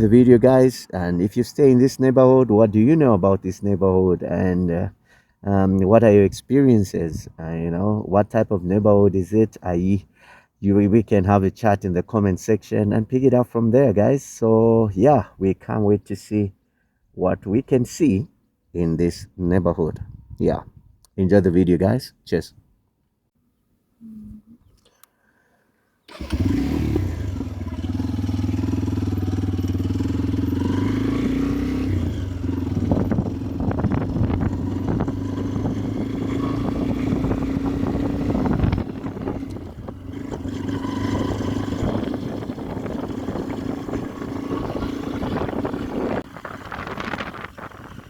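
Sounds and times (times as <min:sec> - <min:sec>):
wind and road noise: 0:00.0 - 0:05.0, 0:19.2 - 0:21.1, 0:26.1 - 0:48.0
motorcycle engine running: 0:26.1 - 0:48.0.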